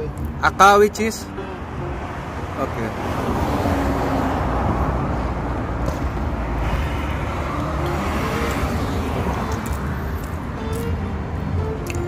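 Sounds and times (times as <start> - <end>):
motor vehicle rumble: 0.0 - 12.0.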